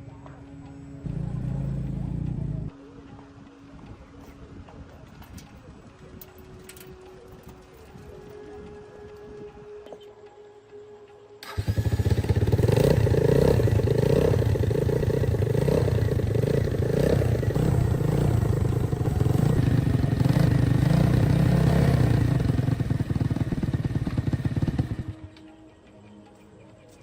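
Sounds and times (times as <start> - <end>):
small motorcycle engine running: 1.0 - 2.7, 11.4 - 25.4
engine throttle blips: 1.0 - 2.8, 11.4 - 25.5.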